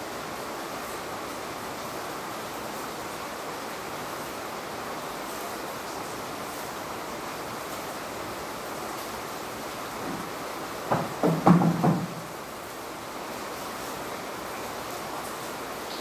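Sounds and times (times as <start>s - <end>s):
heavy rain: 0.0s - 16.0s.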